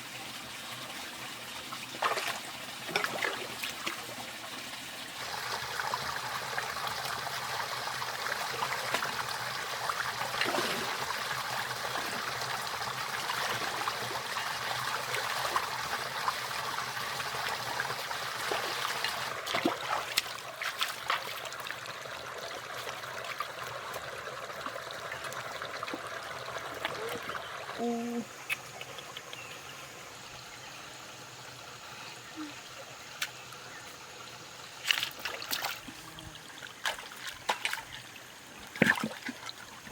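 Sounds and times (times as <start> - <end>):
water trickling: 0.3 - 39.9
sharp splashes: 18.5 - 21.4.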